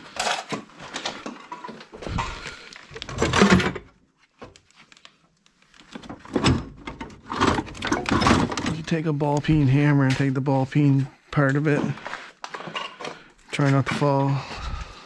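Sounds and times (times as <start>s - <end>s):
metal parts and tools clinking: 6.7s - 8.9s.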